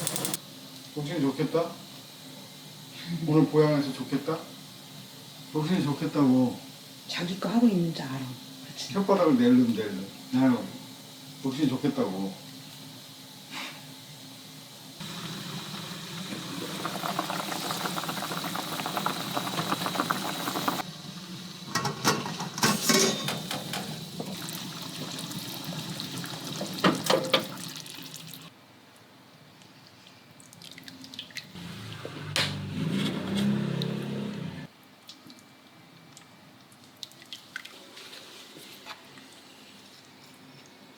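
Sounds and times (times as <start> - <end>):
liquid running and splashing: 16.2 - 20.8
dishes knocking and clinking: 21.8 - 24.5.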